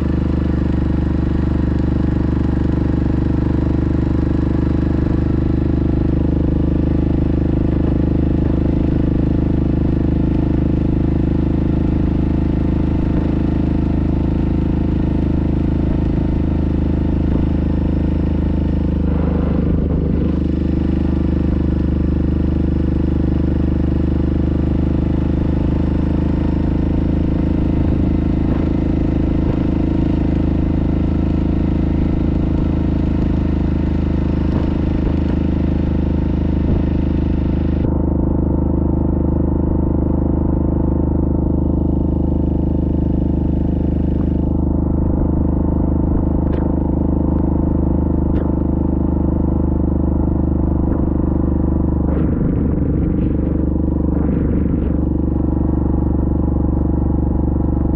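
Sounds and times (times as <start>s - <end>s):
atv engine running: 0.0s - 57.9s.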